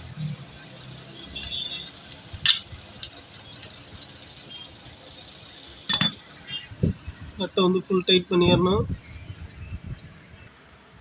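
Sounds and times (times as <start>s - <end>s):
hand tool knocks on metal nut: 5.9s - 6.2s.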